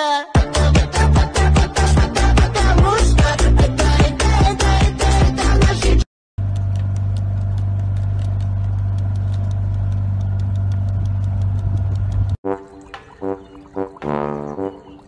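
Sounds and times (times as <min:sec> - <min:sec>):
faint regular ticking: 0:06.4 - 0:12.4
motorboat engine drone: 0:06.4 - 0:12.4.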